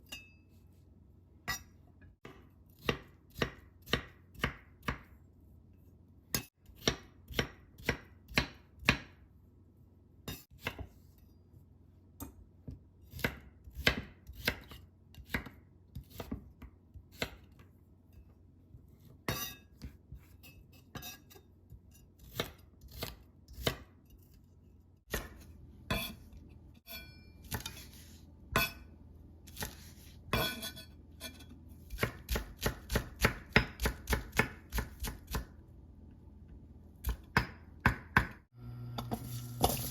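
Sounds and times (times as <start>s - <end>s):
knife chopping on cutting board: 2.2s - 5.2s, 6.3s - 9.2s, 10.5s - 11.0s, 12.2s - 17.6s, 22.2s - 23.9s, 25.1s - 26.2s, 29.5s - 30.8s, 31.9s - 35.5s, 37.0s - 38.4s.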